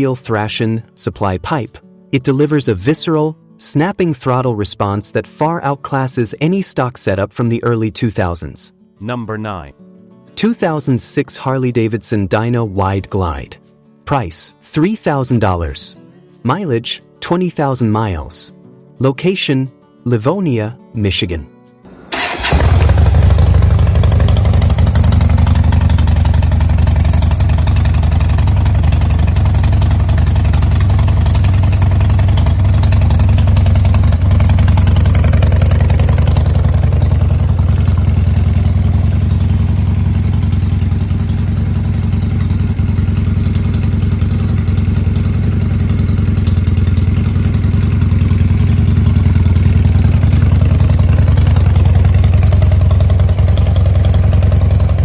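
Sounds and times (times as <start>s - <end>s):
motorcycle engine idling: 21.9s - 55.0s.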